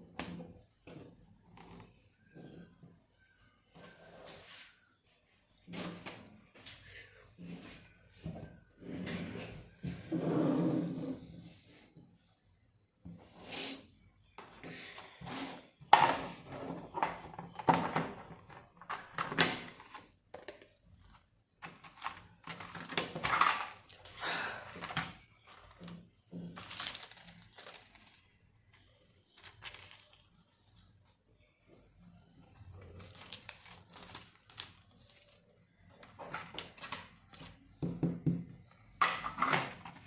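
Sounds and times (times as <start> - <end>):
art materials tapping and rustling: 15.9 - 31.2, 32.2 - 40.0.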